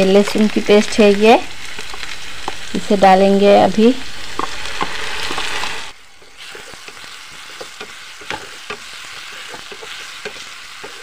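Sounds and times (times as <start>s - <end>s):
onions sizzling in oil: 0.0s - 11.0s
spatula clicking and scraping pan: 6.2s - 11.0s.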